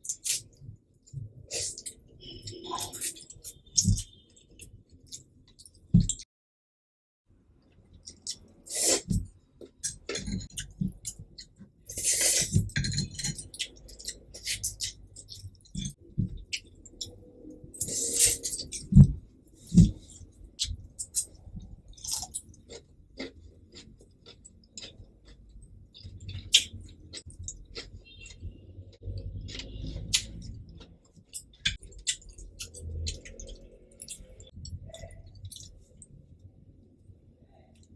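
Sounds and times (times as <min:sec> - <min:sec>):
chewing with wet mouth smacks: 0:07.6 - 0:36.2.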